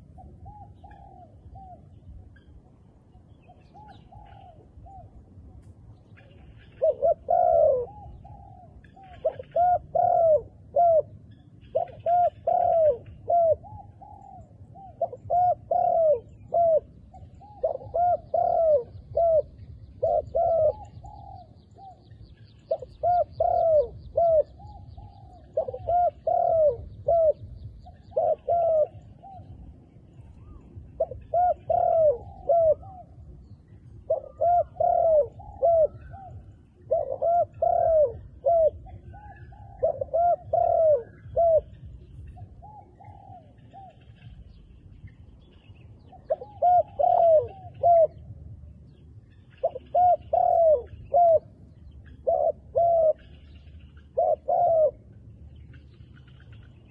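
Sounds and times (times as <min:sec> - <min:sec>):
dove cooing: 0:00.0 - 0:56.9.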